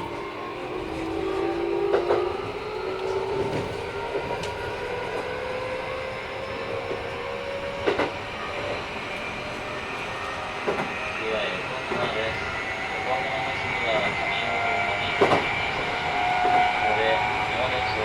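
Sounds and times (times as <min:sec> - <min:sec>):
rail joint clacks: 0:00.0 - 0:18.0
train motor whine rising in pitch: 0:00.0 - 0:18.0
wheels rumbling: 0:00.0 - 0:18.0.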